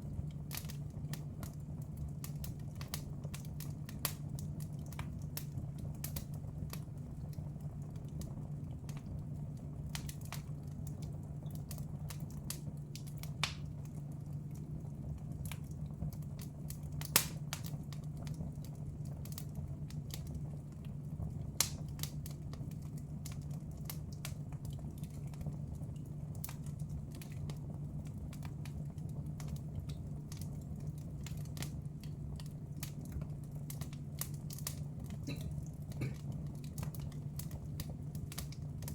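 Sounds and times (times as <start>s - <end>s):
wood fire crackling: 0.0s - 38.9s
steady low hum: 6.0s - 38.9s.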